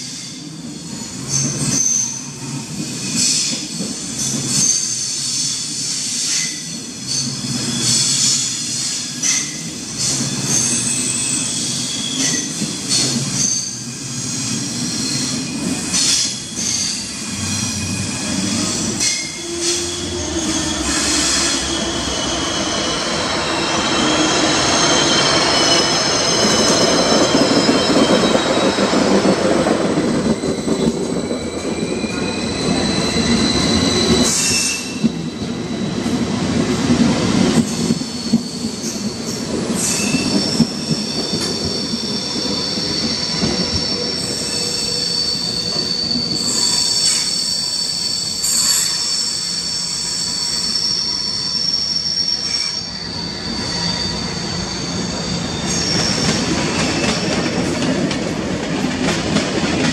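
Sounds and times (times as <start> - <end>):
passing train rush: 0.0 - 59.9
train wheels clicking over joints: 55.7 - 59.9.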